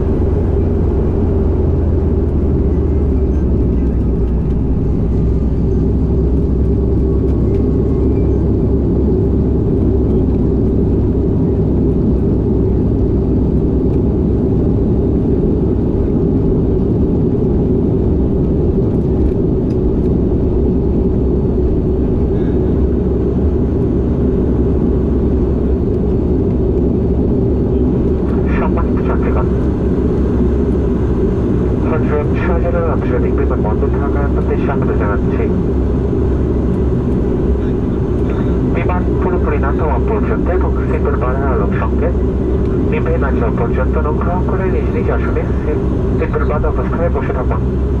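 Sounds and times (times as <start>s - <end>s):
turboprop engines droning: 0.0s - 48.0s.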